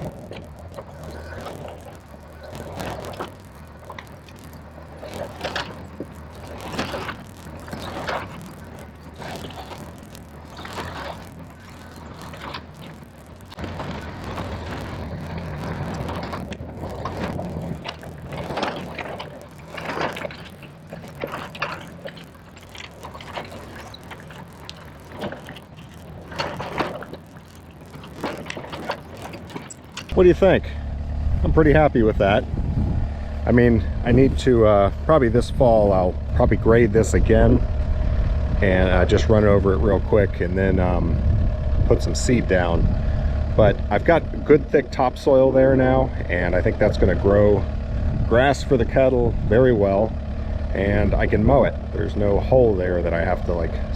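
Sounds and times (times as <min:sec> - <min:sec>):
diesel engine running: 0:30.1 - 0:53.9.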